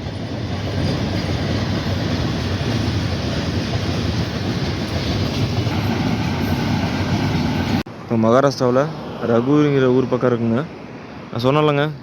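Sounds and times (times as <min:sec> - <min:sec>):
train wheels clattering on rails: 0:00.0 - 0:07.8.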